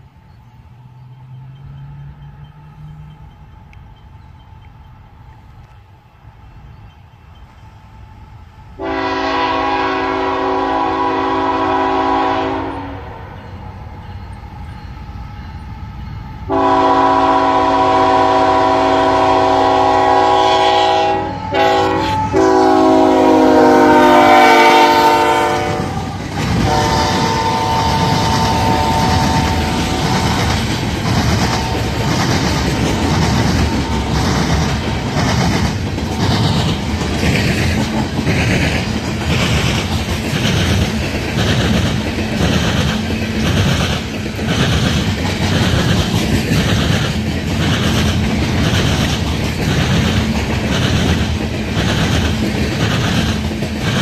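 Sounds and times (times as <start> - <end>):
train wheels clacking: 0.9 - 8.1, 13.5 - 54.0
locomotive horn blasts: 8.8 - 13.4, 16.5 - 30.6, 31.4 - 32.2.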